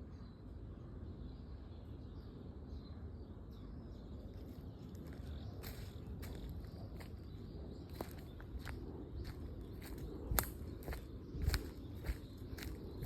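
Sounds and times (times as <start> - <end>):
low outdoor rumble: 0.0 - 13.0
birds chirping: 3.5 - 13.0.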